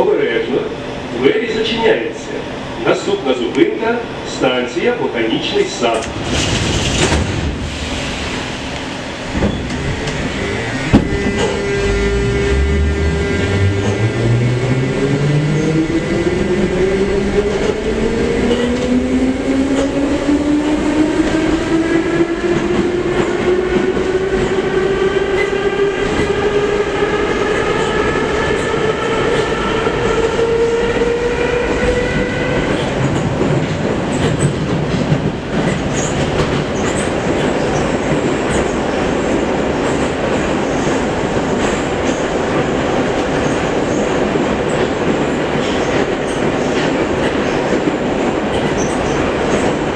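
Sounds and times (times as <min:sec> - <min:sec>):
train wheels rumbling on rails: 0:00.0 - 0:49.9
train motor whine rising: 0:08.7 - 0:16.5.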